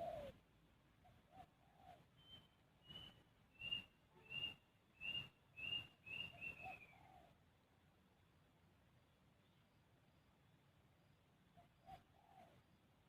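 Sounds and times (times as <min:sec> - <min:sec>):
low dove-like coo: 0:00.0 - 0:00.4, 0:01.0 - 0:02.2, 0:06.1 - 0:07.4, 0:11.6 - 0:12.7.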